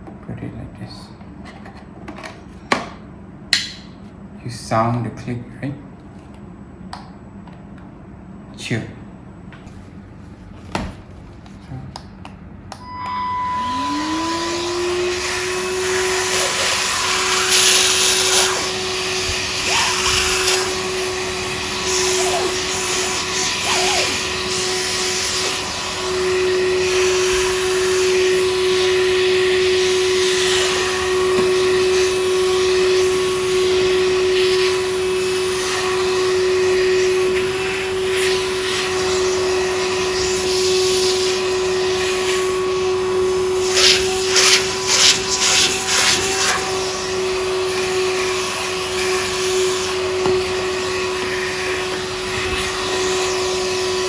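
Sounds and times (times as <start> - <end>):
handheld vacuum cleaner running: 12.8 - 54.0.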